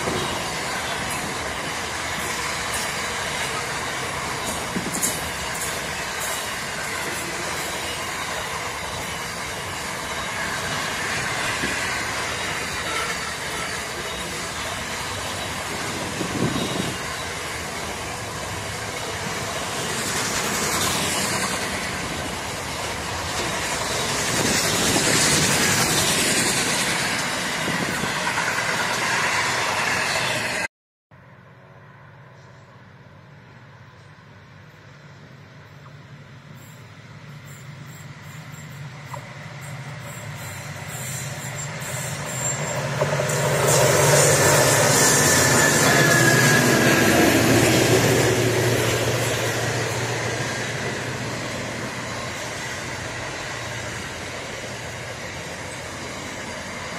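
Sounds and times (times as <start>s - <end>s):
freight train wheels clattering: 0.0s - 29.7s.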